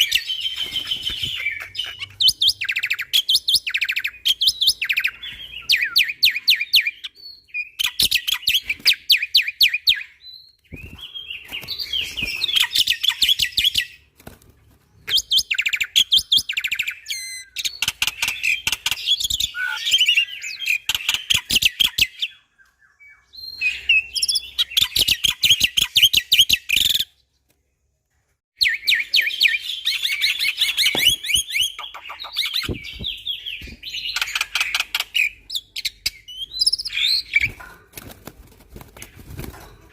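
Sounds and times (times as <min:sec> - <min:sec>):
starling chattering and whistling: 0:28.7 - 0:37.6.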